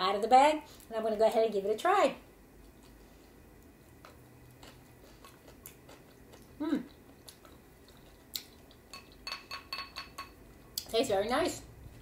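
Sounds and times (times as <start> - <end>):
person chewing rice: 2.6 - 9.2.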